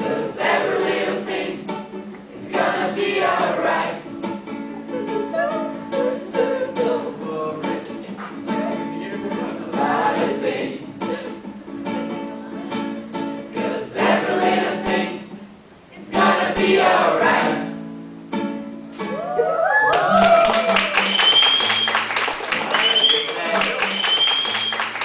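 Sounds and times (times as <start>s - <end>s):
group of voices singing: 0.0s - 4.2s, 4.9s - 11.4s, 13.3s - 17.8s
ukulele strumming chords: 0.0s - 19.4s.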